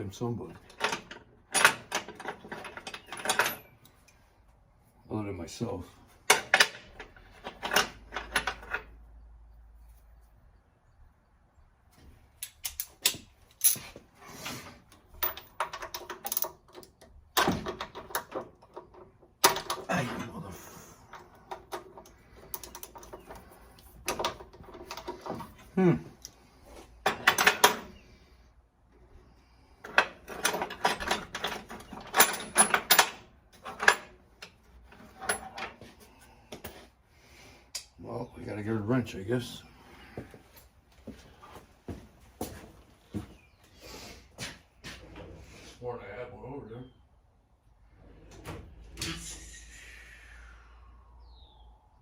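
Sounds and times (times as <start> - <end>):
metal tools clattering: 0.4 - 4.0, 6.2 - 9.1, 12.4 - 26.3, 27.0 - 28.0, 29.8 - 36.8
metal scraping rattles: 6.2 - 9.1, 29.8 - 35.9.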